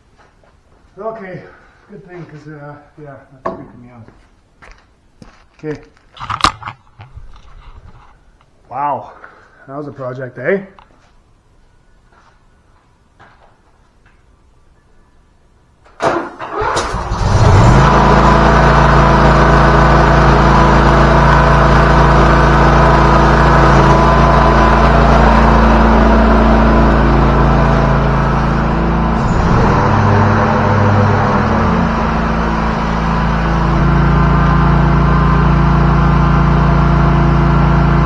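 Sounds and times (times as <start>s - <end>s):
lawnmower engine starting and running: 15.9s - 38.0s.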